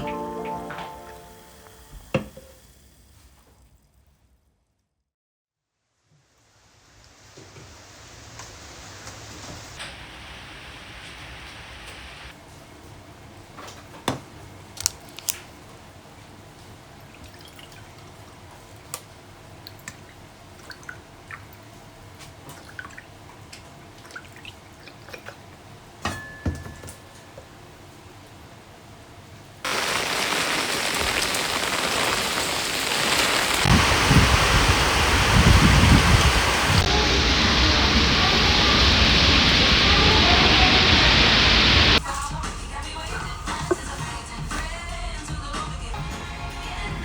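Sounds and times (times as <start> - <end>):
heavy rain: 6.8 - 12.3, 29.6 - 42.0.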